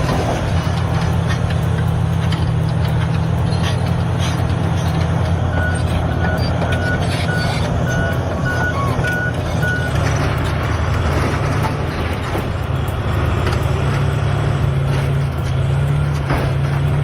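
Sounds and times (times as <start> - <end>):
heavy diesel engine running: 0.0 - 17.0
reversing alarm beeping: 5.3 - 13.8.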